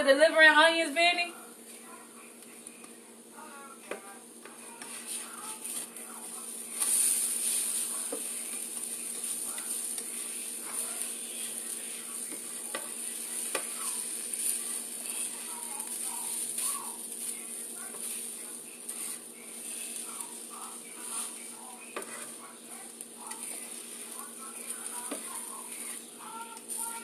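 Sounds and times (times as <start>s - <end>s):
potatoes sizzling in a skillet: 4.4s - 27.0s
spatula scraping a pan: 4.7s - 6.0s, 6.7s - 22.5s, 23.2s - 27.0s.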